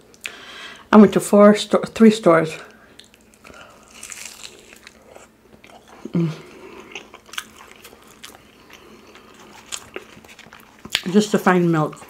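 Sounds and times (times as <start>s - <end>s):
chewing and biting food: 3.0s - 12.0s
person humming: 6.0s - 6.6s.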